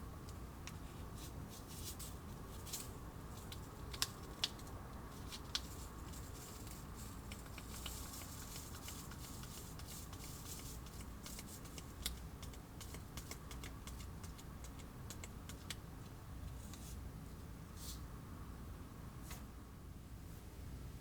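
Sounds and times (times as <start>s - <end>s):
light clicks and taps: 3.4s - 4.8s, 5.4s - 16.9s.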